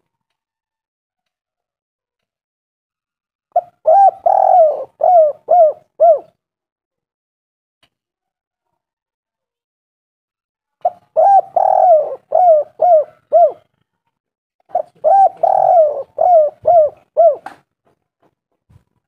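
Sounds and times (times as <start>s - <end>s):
dove cooing: 3.6s - 6.3s, 10.8s - 13.7s, 14.7s - 17.6s.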